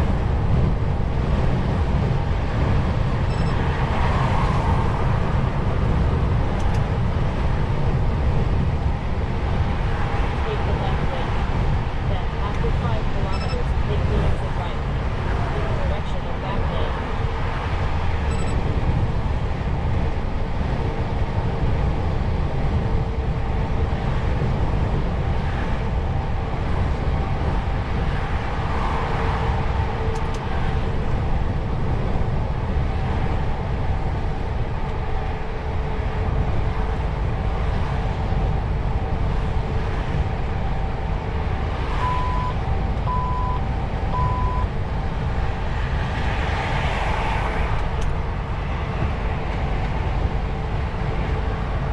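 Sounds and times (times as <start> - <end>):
truck engine and road rumble: 0.0 - 51.9
short beeps: 3.3 - 3.6, 13.3 - 13.7, 18.3 - 18.6, 42.0 - 44.7.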